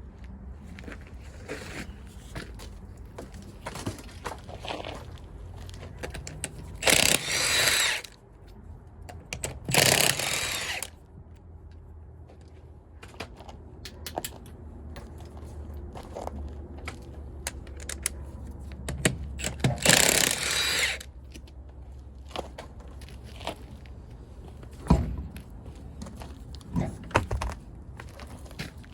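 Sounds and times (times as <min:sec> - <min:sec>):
tools clicking and clinking: 0:05.9 - 0:10.9, 0:17.4 - 0:21.1
power tool running in bursts: 0:06.8 - 0:08.1, 0:09.7 - 0:10.9, 0:19.8 - 0:21.0.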